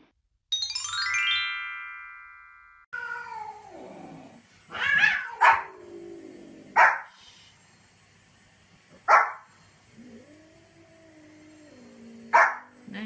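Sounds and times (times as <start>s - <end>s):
dog barking: 5.0s - 5.7s, 6.8s - 7.1s, 9.1s - 9.5s, 12.3s - 12.7s.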